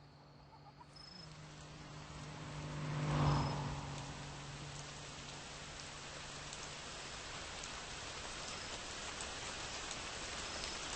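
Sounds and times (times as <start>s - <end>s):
passing car hum: 0.0s - 8.2s
outdoor background hiss: 0.0s - 10.9s.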